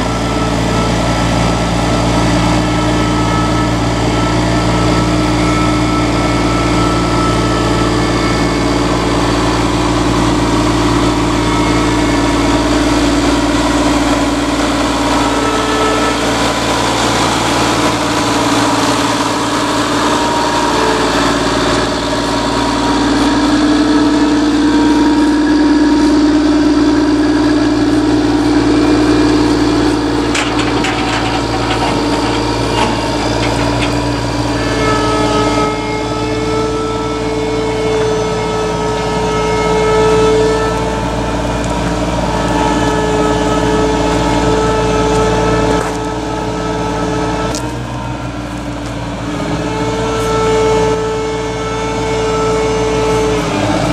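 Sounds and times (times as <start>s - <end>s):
tracked vehicle engine running: 0.0s - 53.9s
short metal clanks: 30.2s - 34.1s.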